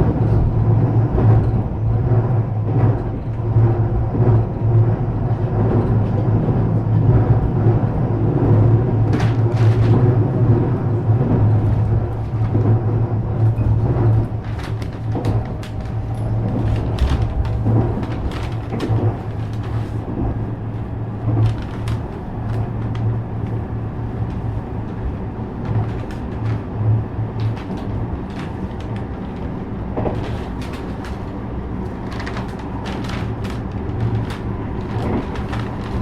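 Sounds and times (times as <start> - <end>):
electric train droning: 0.0 - 36.0
clicks and knocks from track: 8.4 - 36.0.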